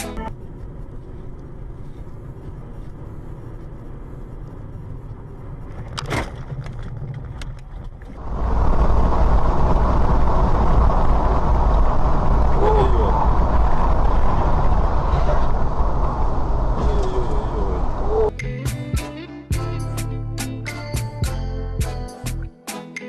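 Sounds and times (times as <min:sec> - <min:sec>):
road vehicle rumble: 0:00.0 - 0:18.4
loud rushing noise: 0:08.2 - 0:18.3.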